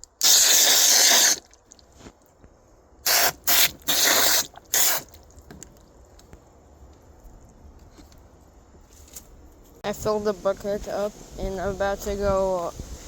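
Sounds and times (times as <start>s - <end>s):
hose spraying water into bucket: 0.0s - 1.5s, 3.0s - 5.2s.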